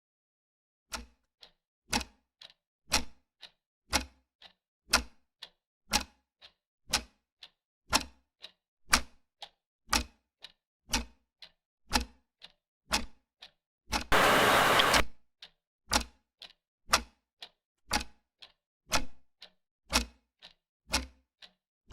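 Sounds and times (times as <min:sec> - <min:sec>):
clock ticking: 0:14.1 - 0:15.0
loud hiss-like noise burst: 0:14.1 - 0:15.0.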